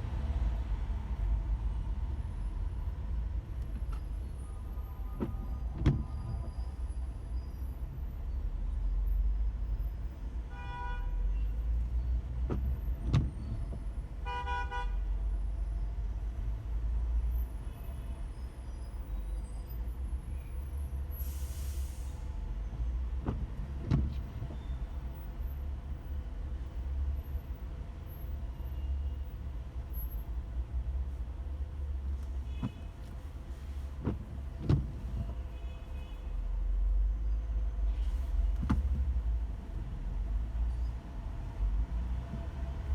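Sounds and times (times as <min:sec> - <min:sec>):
car engine rumble: 0:00.0 - 0:10.5, 0:11.4 - 0:42.9
road noise inside car: 0:00.0 - 0:42.9
car horn toots: 0:14.2 - 0:15.0.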